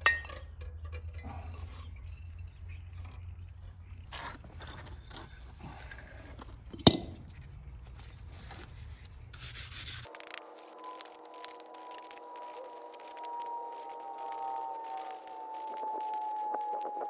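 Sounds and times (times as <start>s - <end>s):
scraping and rubbing on metal: 0.0s - 17.0s
steady held tones: 10.2s - 17.0s.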